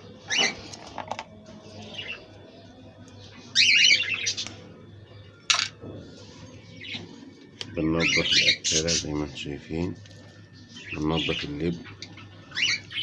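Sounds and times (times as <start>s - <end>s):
budgerigars chirping: 10.6s - 13.0s.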